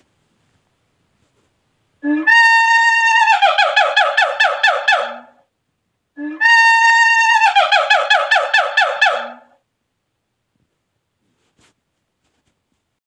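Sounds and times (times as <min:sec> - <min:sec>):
monkey calling: 0:02.0 - 0:05.4, 0:06.2 - 0:09.6.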